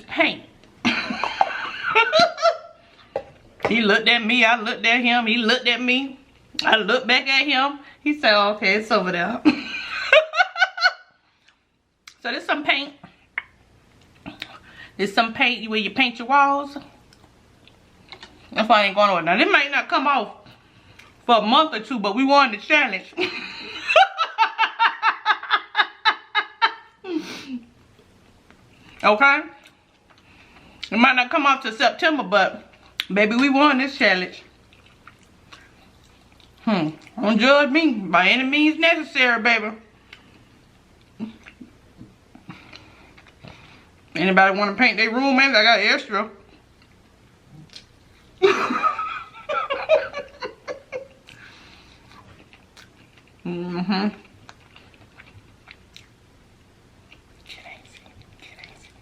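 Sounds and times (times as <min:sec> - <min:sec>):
woman laughing: 0:00.8 - 0:02.8, 0:09.4 - 0:11.0, 0:23.2 - 0:27.7, 0:48.4 - 0:51.2.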